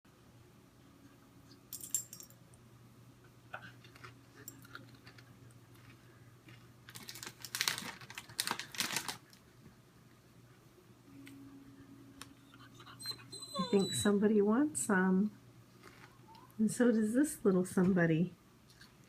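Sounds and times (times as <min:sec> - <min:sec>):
chips crackling and crunching: 0:03.8 - 0:09.4.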